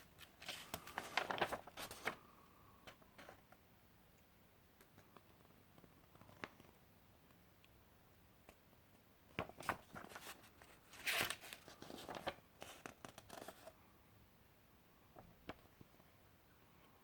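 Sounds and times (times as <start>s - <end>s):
paper pages rustling: 0.0s - 2.3s, 9.4s - 13.8s.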